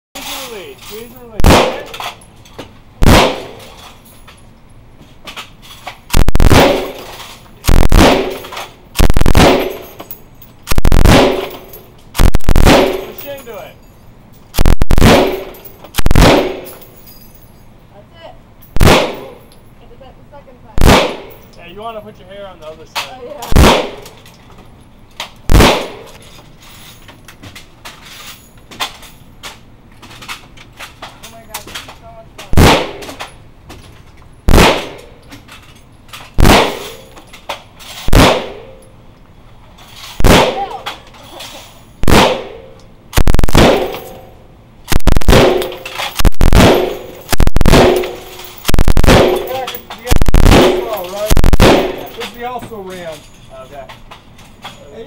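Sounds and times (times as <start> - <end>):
machine gun burst: 7.7 - 8.4, 9.0 - 9.9, 12.2 - 13.4, 14.6 - 16.7, 43.2 - 44.0, 44.9 - 52.1.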